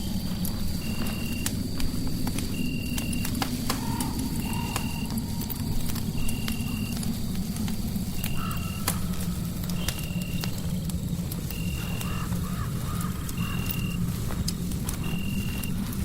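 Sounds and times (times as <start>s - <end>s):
fireplace fire crackling: 0.0s - 16.0s.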